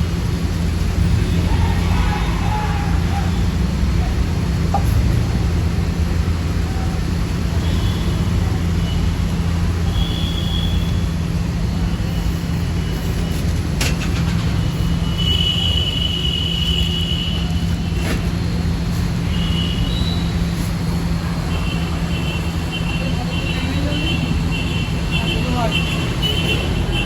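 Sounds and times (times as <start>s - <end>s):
street traffic rumble: 0.0s - 27.0s.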